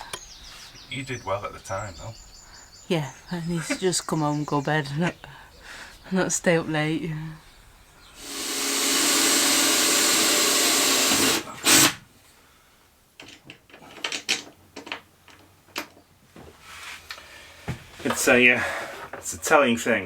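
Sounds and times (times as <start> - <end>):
small electric motor whirring: 8.2 - 12.0.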